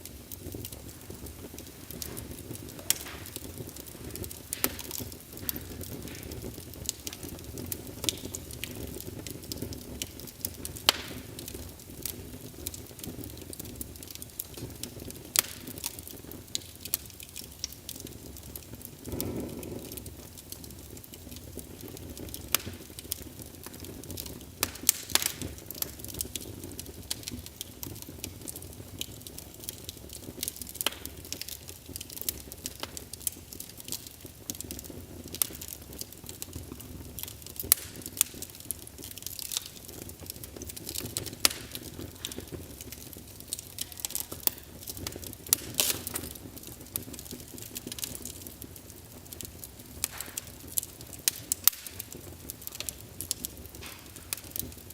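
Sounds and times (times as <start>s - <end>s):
flame rushing: 0.0s - 54.9s
wood fire crackling and popping: 0.0s - 54.9s.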